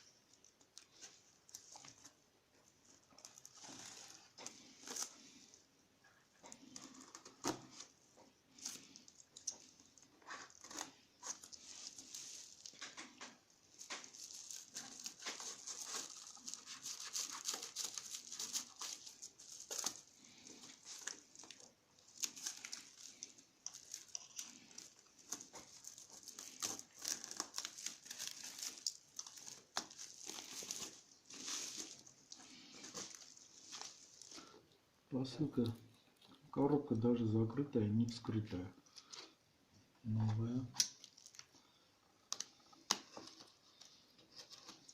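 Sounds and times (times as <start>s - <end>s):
packaging crinkled and torn: 2.8s - 5.3s, 8.5s - 34.6s, 40.8s - 44.9s.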